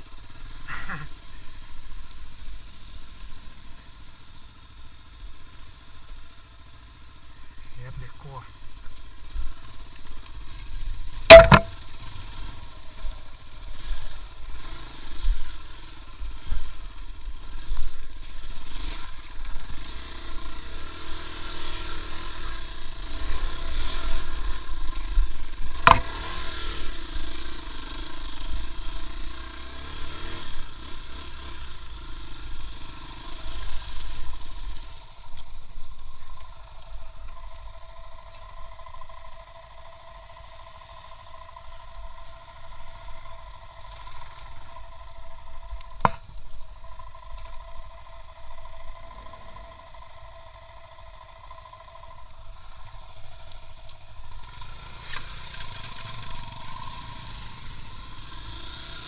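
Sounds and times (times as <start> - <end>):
vehicle engine running unevenly: 0.0 - 59.0
sharp loud knocks: 11.3 - 11.7, 25.8 - 26.2.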